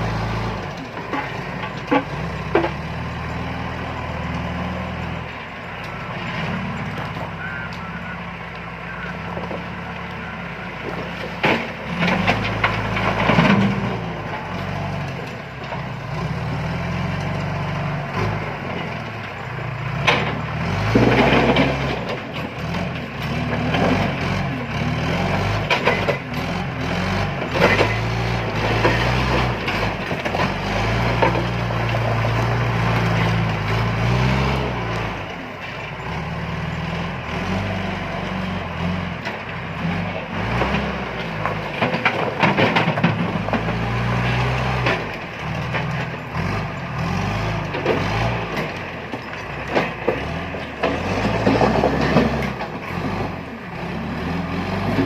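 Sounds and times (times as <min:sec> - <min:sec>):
diesel engine revving: 0:00.0 - 0:55.0.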